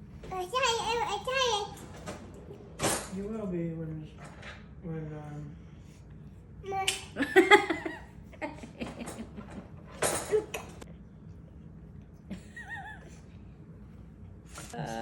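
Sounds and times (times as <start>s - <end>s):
toddler giggling: 12.3s - 13.2s.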